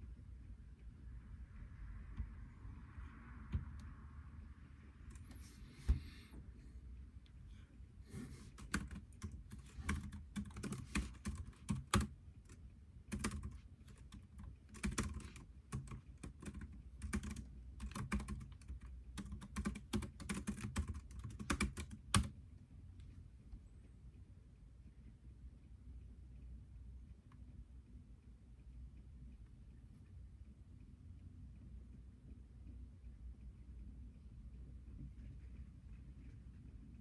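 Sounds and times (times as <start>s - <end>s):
computer keyboard typing: 8.4s - 22.4s.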